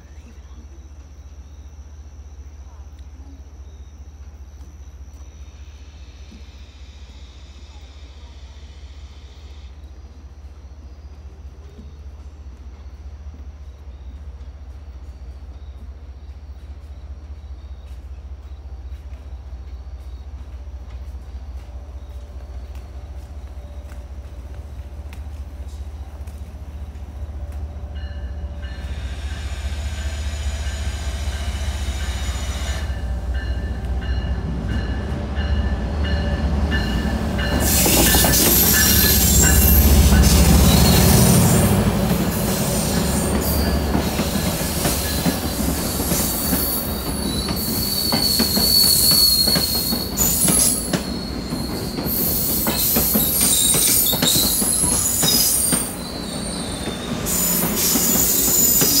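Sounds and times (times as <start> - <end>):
diesel locomotive engine rumbling: 0.0 - 59.0
train wheels clattering: 17.8 - 59.0
high wheel squeal: 28.6 - 41.6, 42.3 - 59.0.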